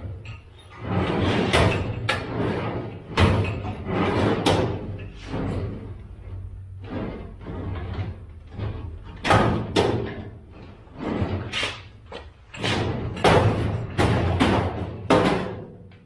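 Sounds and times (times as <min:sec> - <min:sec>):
bangs and thuds on metal cabinet: 0:01.0 - 0:06.0, 0:07.2 - 0:10.4, 0:12.5 - 0:15.9.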